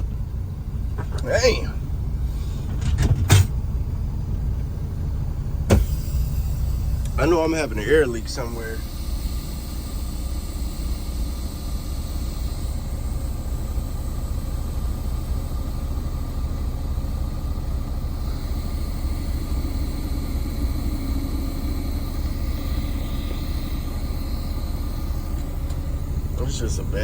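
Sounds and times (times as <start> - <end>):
diesel truck engine idling: 0.0 - 27.0
air leak hissing: 5.7 - 15.8.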